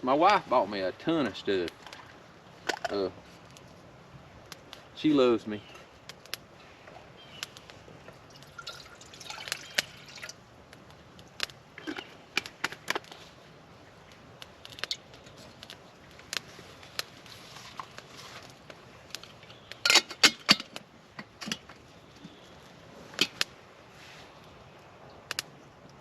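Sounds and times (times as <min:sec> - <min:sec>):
camp gear clicks and knocks: 0:02.6 - 0:03.7, 0:11.4 - 0:13.2, 0:14.4 - 0:23.5.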